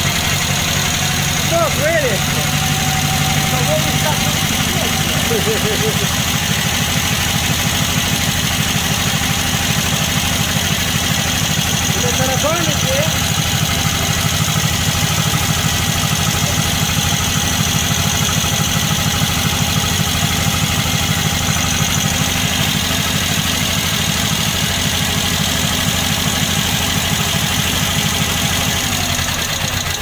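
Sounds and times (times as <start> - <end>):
petrol engine idling: 0.0 - 30.0.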